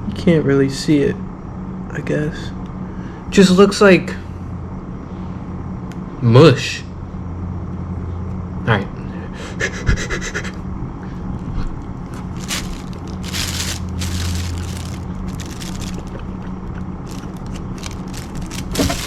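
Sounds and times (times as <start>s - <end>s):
steady low hum: 10.6s - 19.0s
scraping and rustling: 12.0s - 19.0s.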